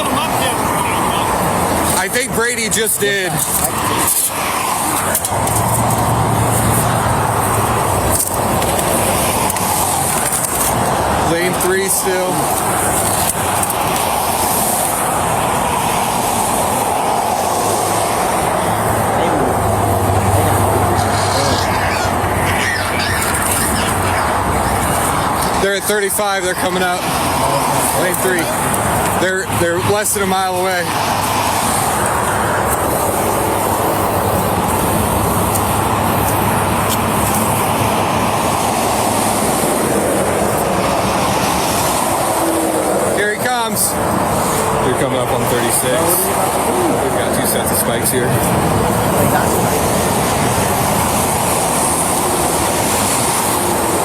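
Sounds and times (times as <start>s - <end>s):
highway traffic roar: 0.0s - 54.0s
loud vehicle noise: 0.0s - 54.0s.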